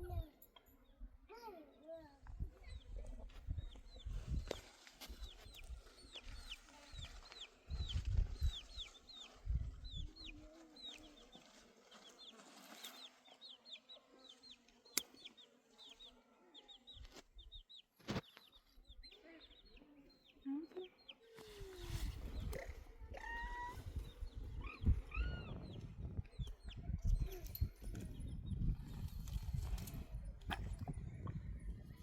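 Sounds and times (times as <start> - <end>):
wind rumbling on microphone: 2.3 - 4.6, 5.2 - 10.3, 21.5 - 32.0
chicks peeping: 5.2 - 11.4, 13.0 - 27.4.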